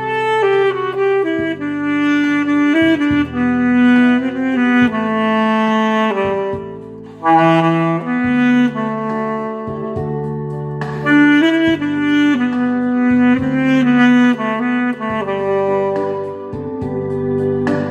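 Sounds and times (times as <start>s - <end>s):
backing track with bass line: 0.0s - 17.9s
saxophone melody: 0.0s - 17.9s.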